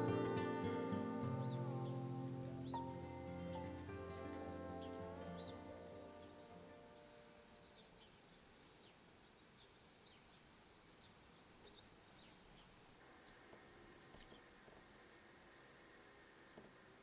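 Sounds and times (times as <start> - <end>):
background music: 0.0 - 7.8
faint birds chirping: 0.0 - 17.0.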